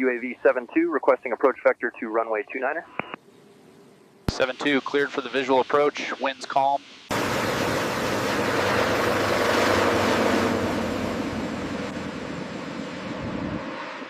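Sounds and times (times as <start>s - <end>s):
aircraft passing: 6.9s - 14.0s.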